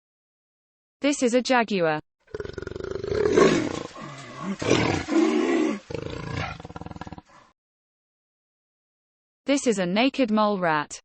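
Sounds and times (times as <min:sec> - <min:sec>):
jaguar roaring: 0:02.3 - 0:07.5.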